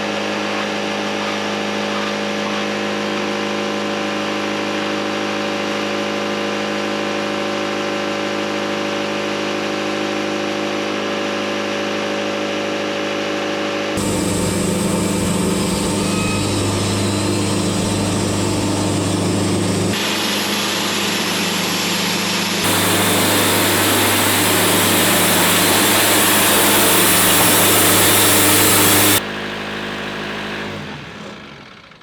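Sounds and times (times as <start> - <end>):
sawmill blade cutting log: 14.0 - 21.8, 22.4 - 29.2
sawmill engine running: 14.0 - 32.0.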